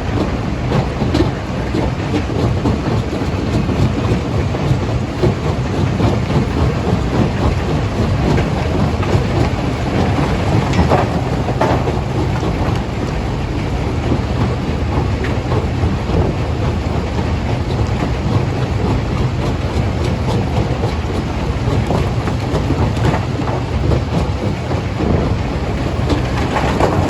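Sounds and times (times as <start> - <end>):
stone crusher rumbling: 6.5 - 17.0, 25.2 - 27.0
rock rattling and clattering: 25.8 - 27.0.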